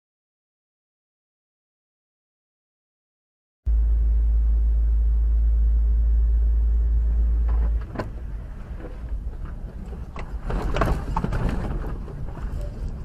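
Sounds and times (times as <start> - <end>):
car driving rumble: 3.7 - 13.0
scattered clicks and knocks: 7.4 - 13.0.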